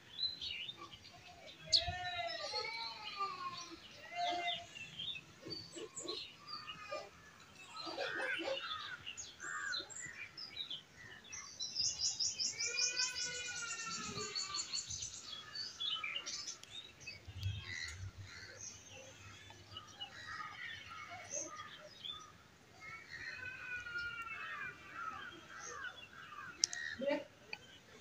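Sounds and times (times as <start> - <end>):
birds chirping and calling: 0.0 - 28.0.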